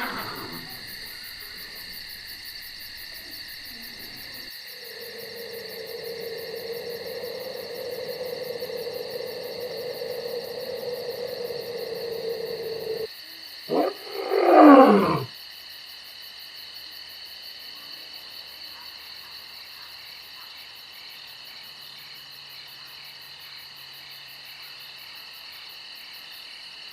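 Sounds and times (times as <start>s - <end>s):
big cat roaring: 0.0s - 1.8s, 3.7s - 13.1s, 13.7s - 15.3s
crickets chirping: 0.0s - 26.9s.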